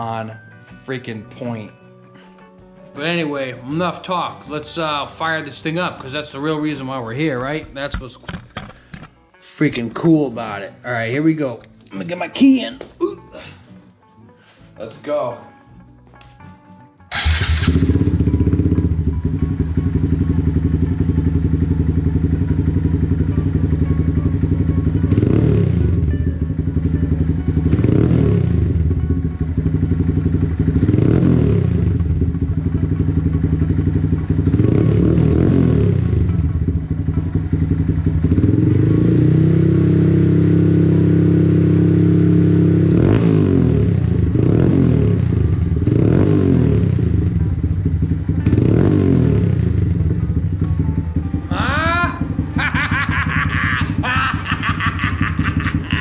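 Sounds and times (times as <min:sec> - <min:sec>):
motorcycle engine idling and revving: 0:17.1 - 0:56.0.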